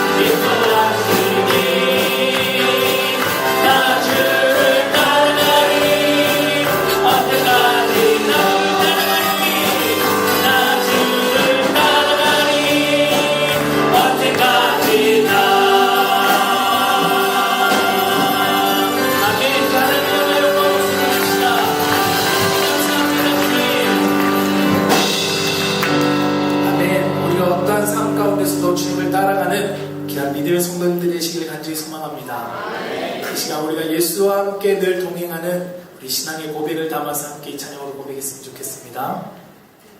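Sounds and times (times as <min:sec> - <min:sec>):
group singing worship song: 0:00.0 - 0:25.3, 0:32.4 - 0:33.6
instrumental accompaniment: 0:00.0 - 0:31.4.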